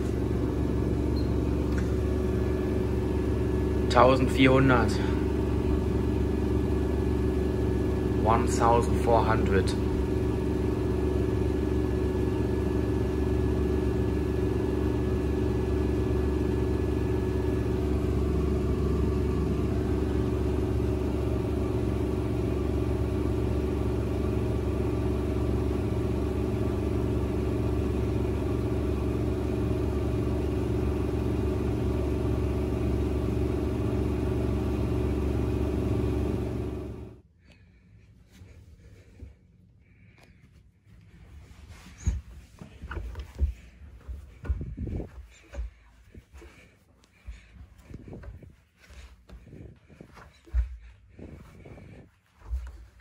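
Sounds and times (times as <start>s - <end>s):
washing machine spinning: 0.0s - 37.2s.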